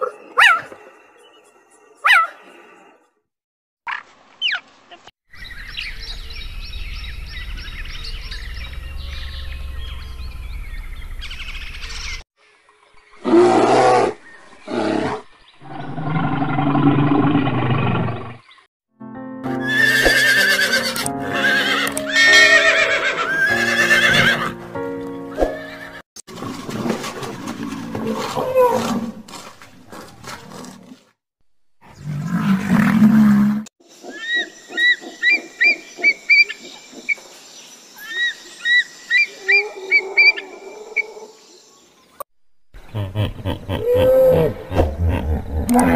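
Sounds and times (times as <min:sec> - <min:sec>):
background music: 0:19.0 - 0:26.0
horse whinnying: 0:19.6 - 0:24.5.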